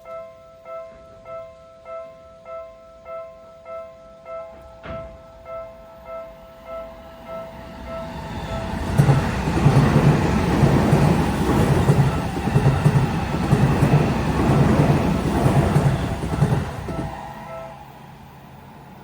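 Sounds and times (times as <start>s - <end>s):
train wheels clattering over joints: 8.6s - 17.2s.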